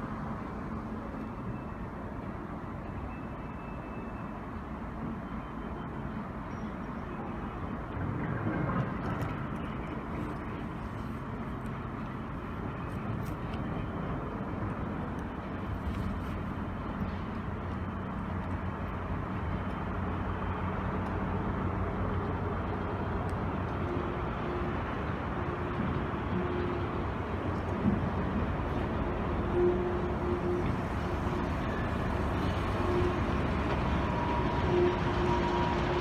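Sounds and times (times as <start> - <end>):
train rumble and hum: 4.2 - 36.0
high-pitched whine: 28.1 - 36.0.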